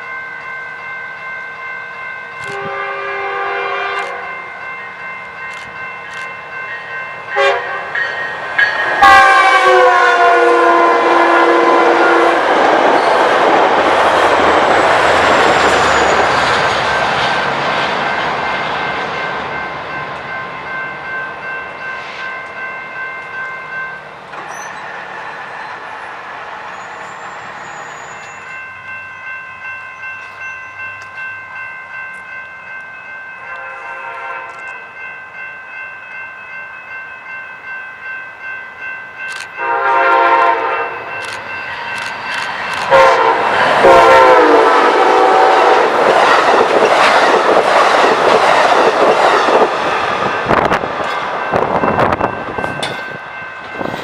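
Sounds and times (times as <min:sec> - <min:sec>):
railroad crossing bells ringing: 0:00.0 - 0:54.0
rush of passing train: 0:00.0 - 0:54.0
train horn: 0:02.4 - 0:04.3, 0:07.4 - 0:08.0, 0:08.8 - 0:13.1, 0:33.4 - 0:34.7, 0:39.6 - 0:41.2, 0:42.8 - 0:46.4.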